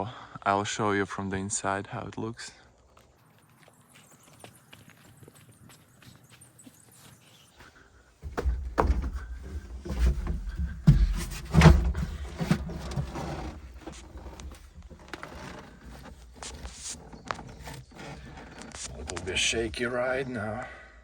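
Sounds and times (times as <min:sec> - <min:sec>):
sharp knocks and rattles: 0:08.2 - 0:19.3
excavator engine rumble: 0:08.2 - 0:20.4.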